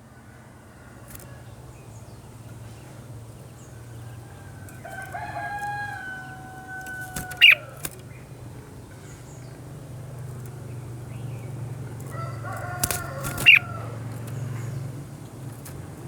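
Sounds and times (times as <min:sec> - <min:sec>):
rooster crowing: 0:04.0 - 0:07.8, 0:12.1 - 0:14.1
sharp loud bird notes: 0:06.0 - 0:07.9, 0:12.8 - 0:14.8.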